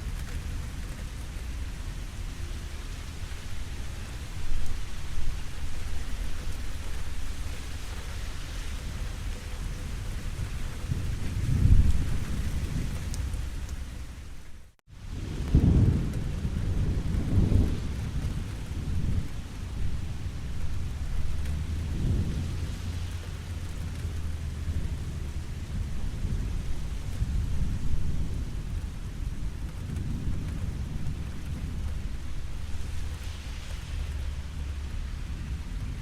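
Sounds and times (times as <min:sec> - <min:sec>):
rain falling: 0:00.0 - 0:36.0
rolling thunder: 0:09.8 - 0:14.3, 0:15.0 - 0:36.0.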